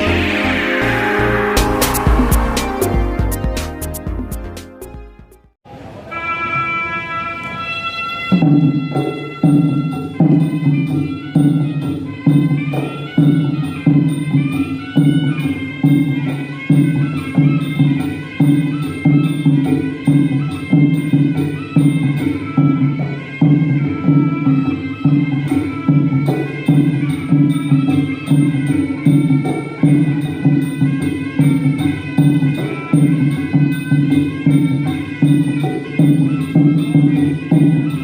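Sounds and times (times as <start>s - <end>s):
wavering reed-pipe melody: 0.0s - 4.6s
steady drum beat: 0.0s - 5.5s.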